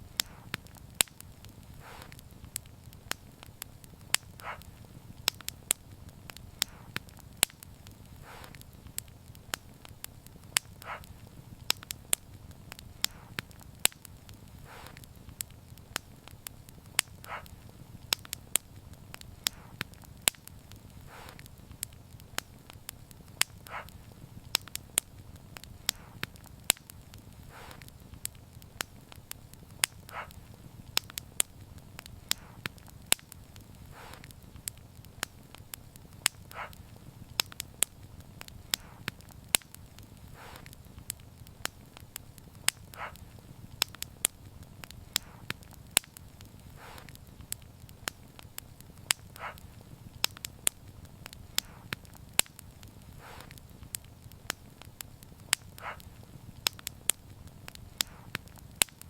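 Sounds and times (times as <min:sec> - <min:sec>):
low rumble of fire: 0:00.0 - 0:59.0
soft hiss: 0:00.0 - 0:59.0
wood fire crackling: 0:00.0 - 0:59.0.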